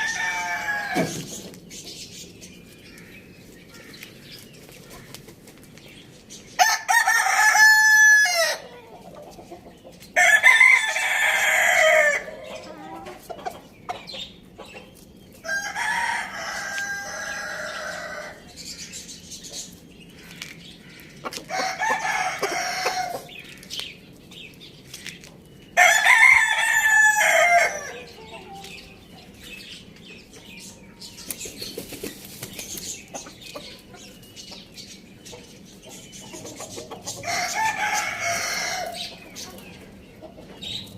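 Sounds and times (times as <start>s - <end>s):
rooster crowing: 0.0s - 1.1s, 6.6s - 8.6s, 10.2s - 12.4s, 15.4s - 18.4s, 21.5s - 23.3s, 25.8s - 28.1s, 37.2s - 39.0s.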